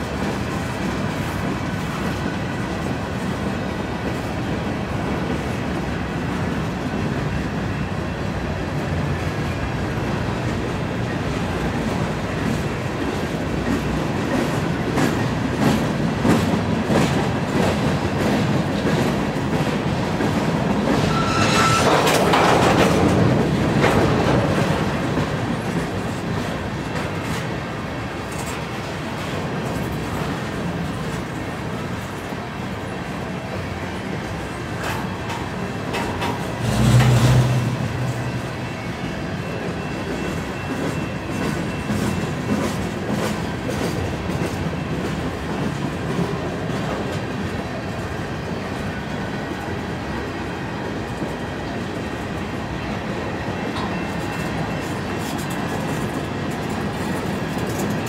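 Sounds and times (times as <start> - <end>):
freight train wheels rumbling: 0.0 - 58.0
rattling freight cars: 0.0 - 58.0
high squeal: 21.0 - 22.2
wheels clicking over rail joints: 34.8 - 38.1, 53.7 - 58.0.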